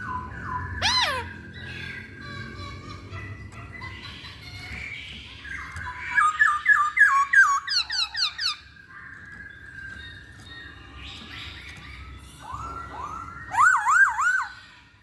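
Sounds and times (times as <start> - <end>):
bird singing whistles: 12.4 - 14.7.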